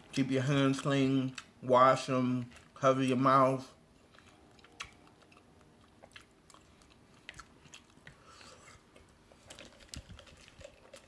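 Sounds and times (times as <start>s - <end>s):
chewing mouth clicks and smacks: 4.0s - 11.0s.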